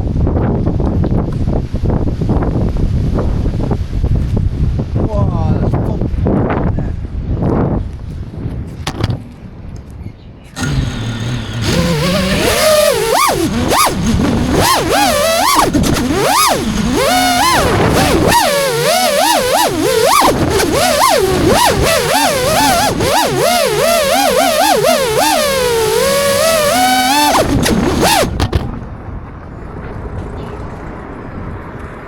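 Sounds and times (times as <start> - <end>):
drone propellers whining: 10.6 - 28.8.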